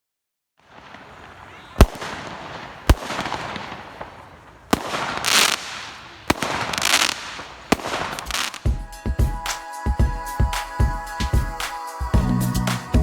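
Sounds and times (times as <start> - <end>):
fireworks bangs: 0.6 - 9.7
fireworks crackling: 0.6 - 12.0.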